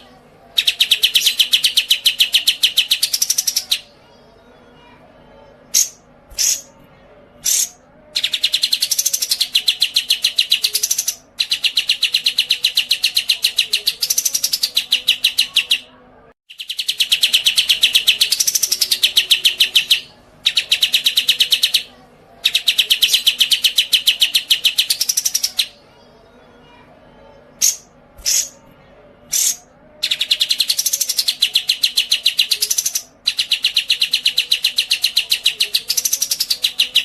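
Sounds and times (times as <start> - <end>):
songbird rapid trill: 27.6 - 28.6.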